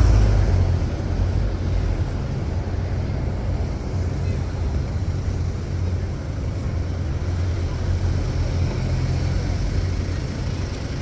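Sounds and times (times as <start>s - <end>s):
city street traffic rumble: 0.0s - 11.0s.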